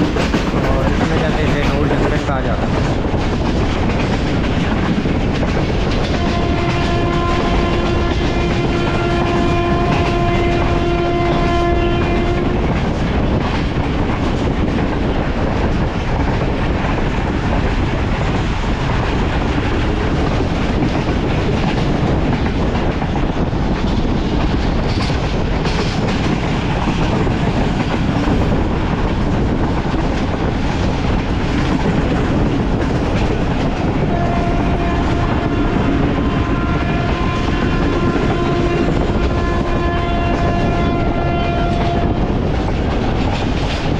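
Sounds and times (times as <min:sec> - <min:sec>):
train wheels rumbling on track: 0:00.0 - 0:43.9
train horn: 0:06.0 - 0:12.8, 0:34.0 - 0:42.4.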